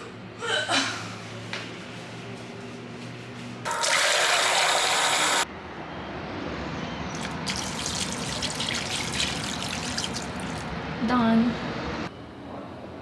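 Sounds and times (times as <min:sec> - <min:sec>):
running water gushing: 0:07.1 - 0:10.7.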